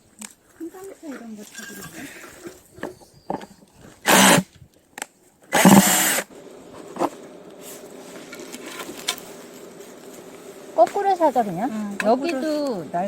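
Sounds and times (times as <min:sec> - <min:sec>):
power drill driving screws: 0:04.0 - 0:04.5, 0:05.5 - 0:06.3.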